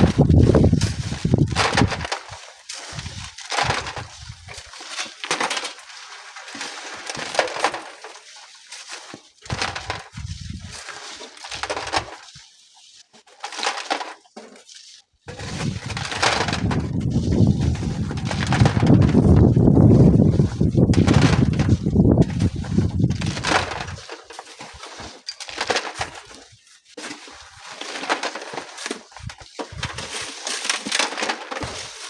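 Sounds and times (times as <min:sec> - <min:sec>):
strong wind buffeting microphone: 0:00.0 - 0:02.0, 0:15.3 - 0:24.0
sand and gravel crunching: 0:00.0 - 0:32.0.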